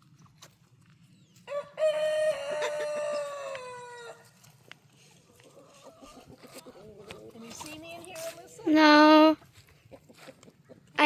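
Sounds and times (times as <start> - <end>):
rooster crowing: 1.5 - 4.4.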